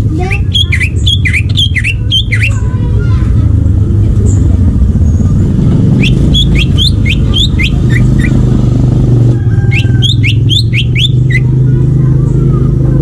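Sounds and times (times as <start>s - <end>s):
bird whistling song: 0.2s - 2.6s, 6.0s - 8.4s, 9.6s - 11.6s.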